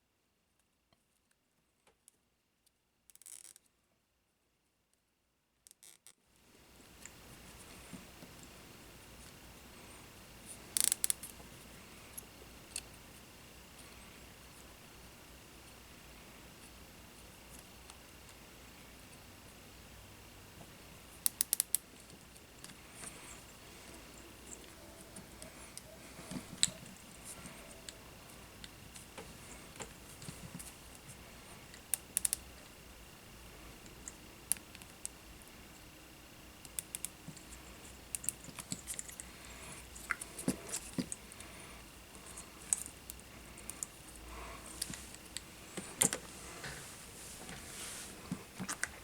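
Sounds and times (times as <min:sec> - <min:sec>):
faint high tone: 0:23.9 - 0:28.4.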